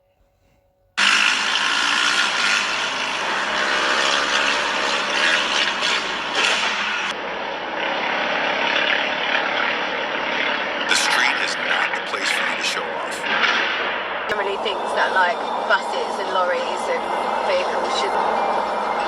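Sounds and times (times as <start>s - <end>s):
rattling vehicle noise: 1.0s - 7.2s.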